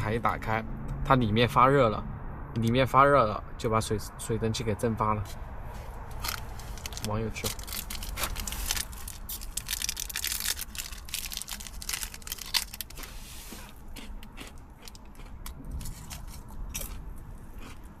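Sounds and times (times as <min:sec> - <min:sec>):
material crinkling and rustling: 0:05.7 - 0:13.7.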